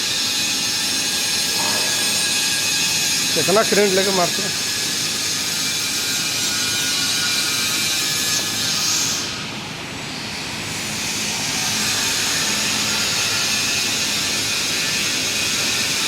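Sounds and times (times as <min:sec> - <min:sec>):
loud industrial hissing: 0:01.3 - 0:05.6.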